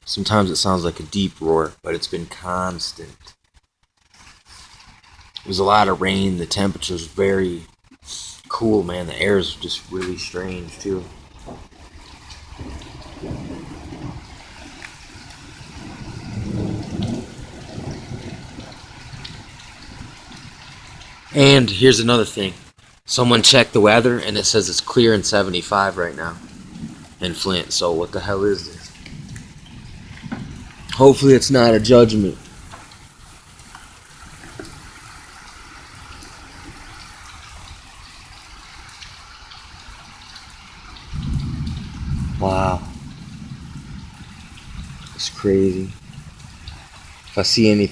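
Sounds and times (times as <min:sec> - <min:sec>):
steady rain: 0:00.0 - 0:47.9
faint drip-like ticks: 0:03.2 - 0:05.6, 0:14.0 - 0:15.4, 0:28.8 - 0:31.0
water trickling: 0:04.1 - 0:47.9
low rumbling thunder: 0:08.9 - 0:22.7, 0:23.4 - 0:38.7, 0:40.8 - 0:47.9.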